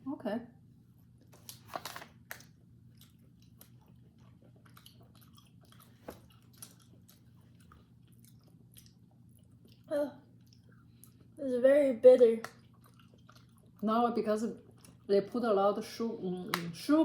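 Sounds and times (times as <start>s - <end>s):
faint steady hum: 0.0s - 17.0s
chewing: 1.2s - 11.4s, 12.4s - 15.4s.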